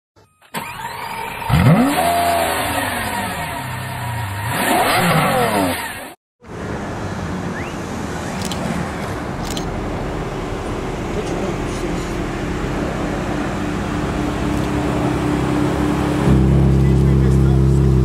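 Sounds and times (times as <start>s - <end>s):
low engine and road rumble: 0.2s - 18.0s
sports car engine revving: 1.4s - 6.1s, 10.7s - 18.0s.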